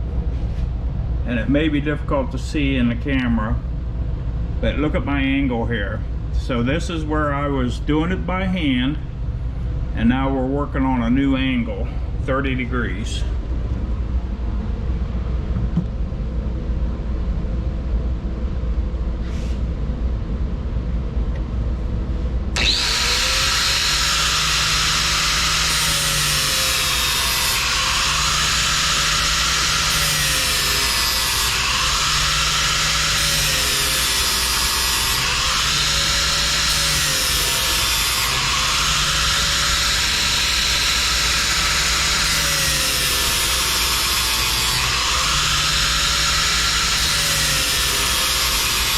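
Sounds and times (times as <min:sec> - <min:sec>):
low steady rumble: 0:00.0 - 0:22.9.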